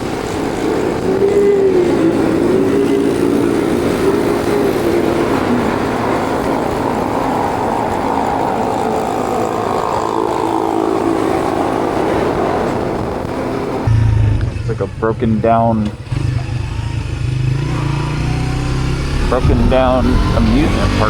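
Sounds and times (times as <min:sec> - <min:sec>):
road and wind noise: 0:00.0 - 0:21.0
motorbike engine running: 0:13.8 - 0:21.0.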